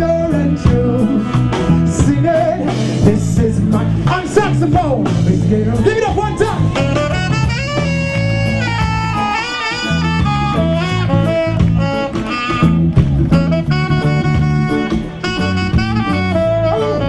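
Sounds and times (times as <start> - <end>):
saxophone solo: 0.0 - 2.8, 6.2 - 17.0
bass and drums groove: 0.0 - 17.0
live reggae band: 0.0 - 17.0.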